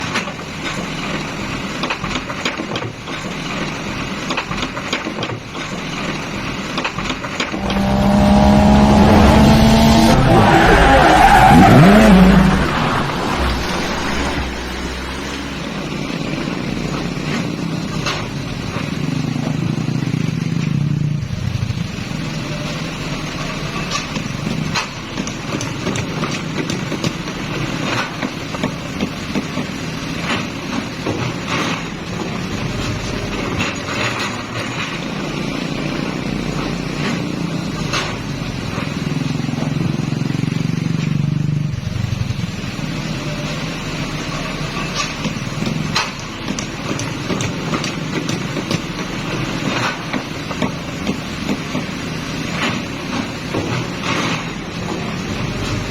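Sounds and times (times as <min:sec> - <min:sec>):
diesel engine running: 0:07.6 - 0:23.8
sharp knocks and clatters: 0:44.4 - 0:55.8.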